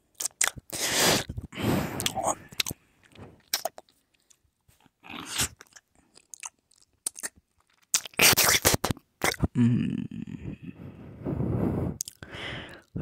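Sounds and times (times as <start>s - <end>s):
crunching and chewing: 0.0s - 0.8s, 2.0s - 9.4s.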